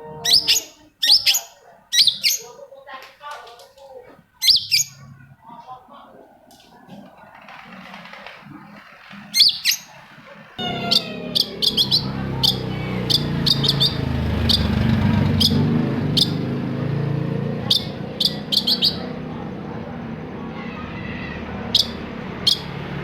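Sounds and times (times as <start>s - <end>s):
bird calling sharp high notes: 0.0s - 2.5s, 10.6s - 16.6s, 17.6s - 19.2s, 20.5s - 22.9s.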